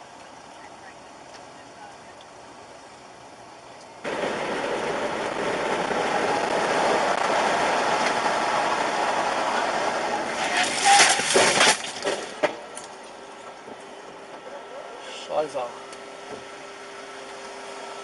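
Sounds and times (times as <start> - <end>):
car road noise: 0.0 - 18.0
car crash bangs and crunches: 10.2 - 12.8.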